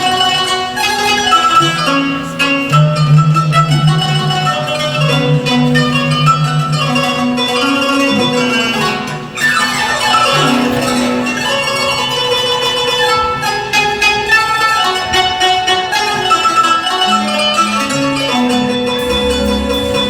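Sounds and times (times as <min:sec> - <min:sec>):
lower instrumental line: 0:00.0 - 0:20.0
plucked string melody: 0:00.0 - 0:20.0.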